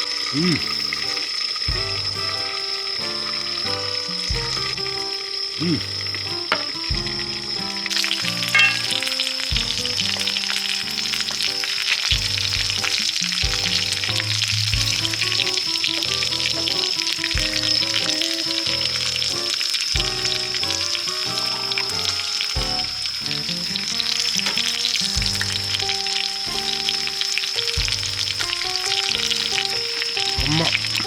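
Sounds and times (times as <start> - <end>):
food sizzling in a pan: 0.0 - 31.0
background music with bass line: 1.7 - 27.2, 27.8 - 31.0.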